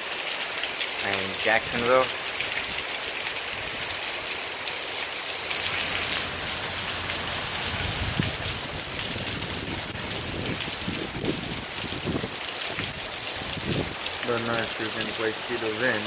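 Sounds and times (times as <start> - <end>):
steady rain falling: 0.0 - 16.0
low rumble of wind: 5.4 - 14.2.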